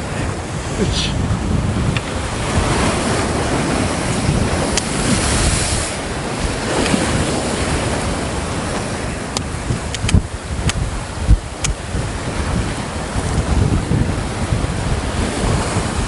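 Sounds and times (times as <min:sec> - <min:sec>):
waves breaking against rock: 0:00.0 - 0:16.0
wind buffeting microphone: 0:00.0 - 0:16.0.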